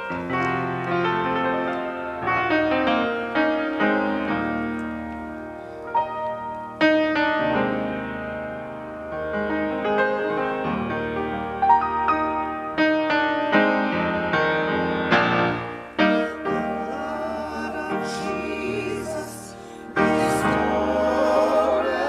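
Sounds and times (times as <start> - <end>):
piano playing: 0.0 - 22.0.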